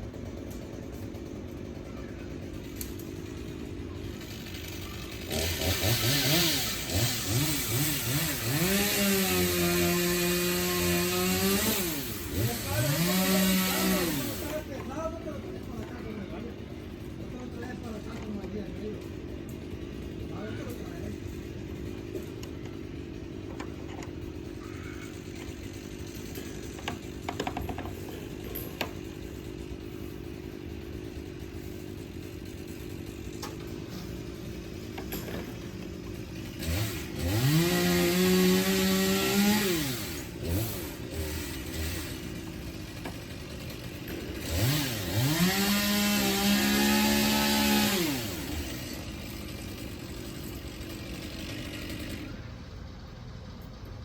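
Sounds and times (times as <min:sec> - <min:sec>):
chainsaw idling and revving: 0:00.0 - 0:54.0
engine running: 0:00.0 - 0:54.0.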